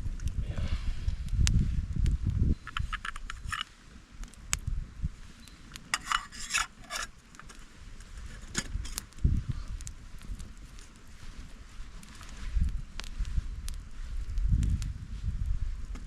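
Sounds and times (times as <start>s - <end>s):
short scraping rustles: 5.9s - 7.1s.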